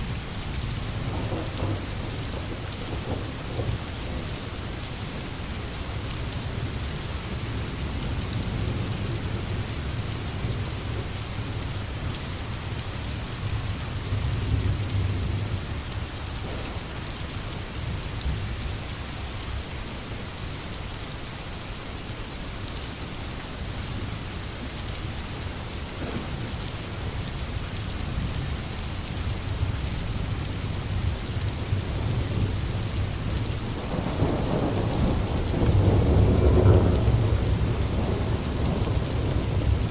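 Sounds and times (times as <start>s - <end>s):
rain hissing: 0.0s - 20.8s
distant thunder rumbling: 1.0s - 4.3s, 16.4s - 17.4s, 26.0s - 26.7s, 33.7s - 39.9s.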